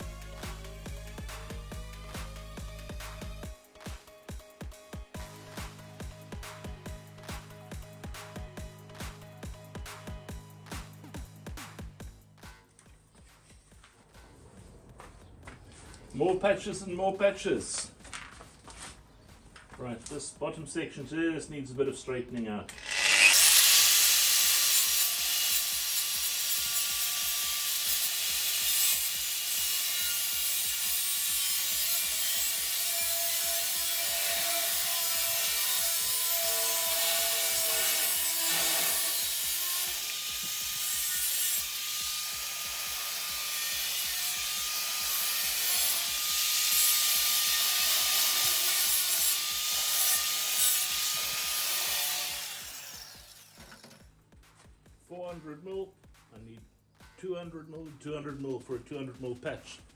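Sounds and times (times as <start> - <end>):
power tool grinding sheet metal: 22.7 - 54.0.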